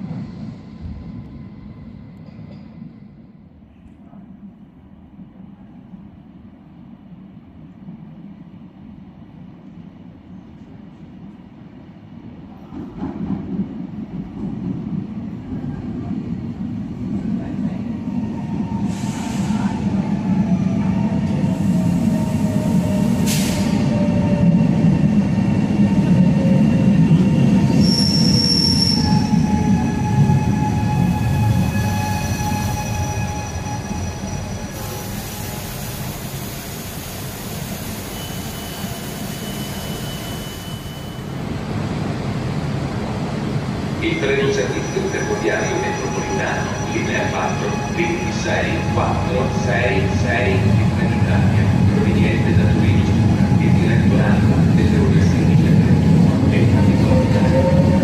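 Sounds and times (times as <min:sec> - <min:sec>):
train wheels rumbling on rails: 0:12.5 - 0:58.0
brief high squeal: 0:27.7 - 0:35.6, 0:38.0 - 0:41.4.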